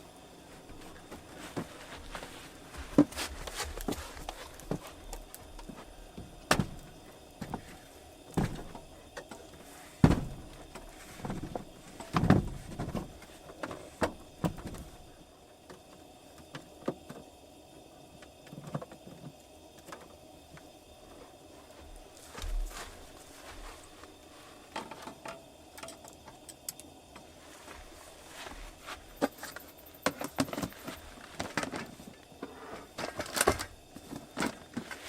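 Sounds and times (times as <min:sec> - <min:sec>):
objects knocking and thumping: 0:00.7 - 0:07.8, 0:08.4 - 0:09.4, 0:10.0 - 0:14.9, 0:29.2 - 0:35.0.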